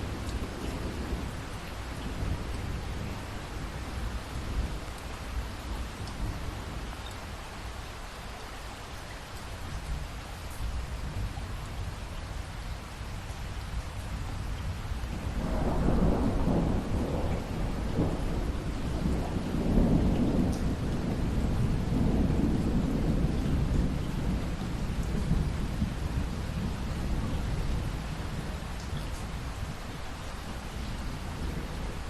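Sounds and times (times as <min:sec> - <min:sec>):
steady rain falling: 0:00.0 - 0:32.0
thunder rumbling: 0:15.3 - 0:29.8.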